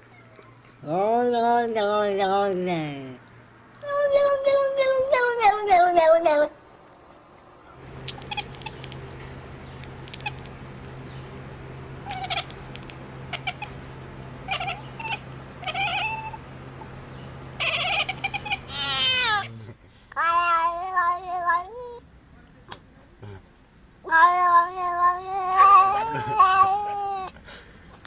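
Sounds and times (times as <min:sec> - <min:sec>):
steady low hum: 0:06.2 - 0:20.1
cat meowing and yowling: 0:14.5 - 0:16.4, 0:17.6 - 0:19.5, 0:20.2 - 0:22.0, 0:24.1 - 0:27.3.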